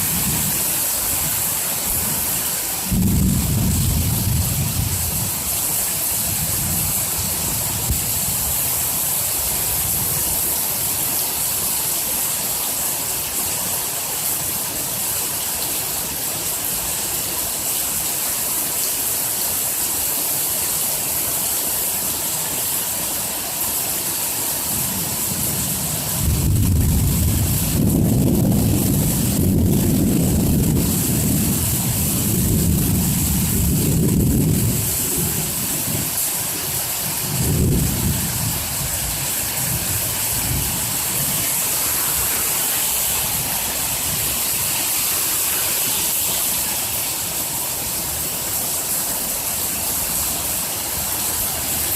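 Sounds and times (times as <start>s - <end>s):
heavy rain hissing: 0.0s - 51.9s
thunder rumbling: 2.8s - 5.6s, 26.2s - 36.2s, 37.2s - 42.3s.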